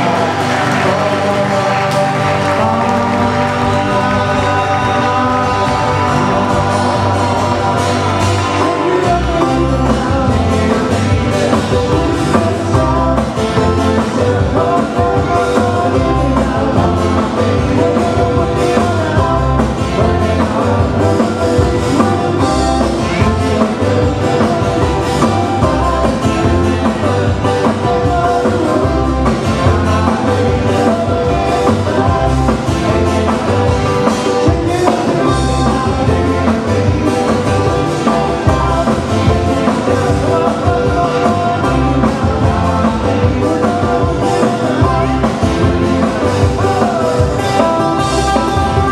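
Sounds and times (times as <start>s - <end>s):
live band music with singing: 0.0s - 48.9s
low bass pattern: 0.0s - 48.9s.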